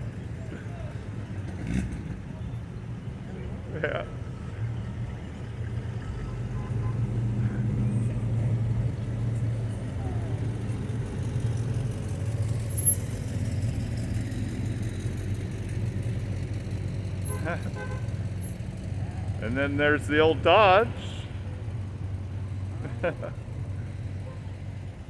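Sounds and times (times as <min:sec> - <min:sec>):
car engine rolling past: 0:00.0 - 0:25.0.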